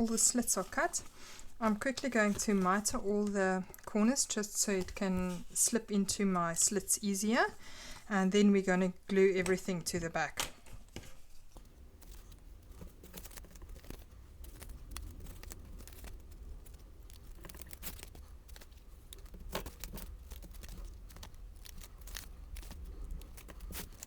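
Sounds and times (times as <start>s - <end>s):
paper rustling: 10.6s - 24.0s.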